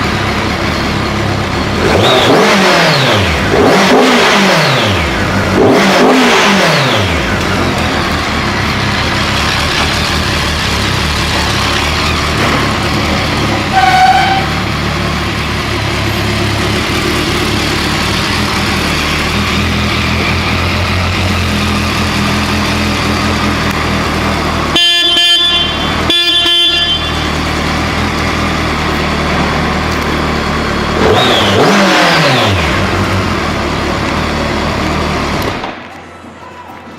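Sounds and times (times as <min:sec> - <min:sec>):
motorcycle engine idling: 0:00.0 - 0:01.9, 0:07.0 - 0:31.6
horn beeps: 0:13.6 - 0:14.7, 0:24.7 - 0:27.6, 0:31.0 - 0:32.7.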